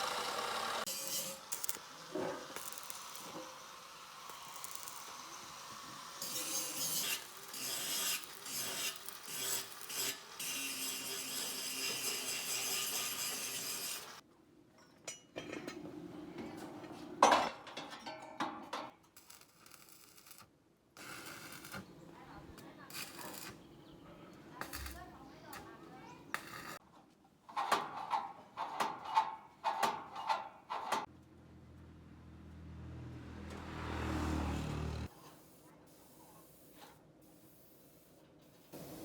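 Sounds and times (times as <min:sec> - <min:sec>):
hand tool scraping and rasping: 0:00.0 - 0:14.2.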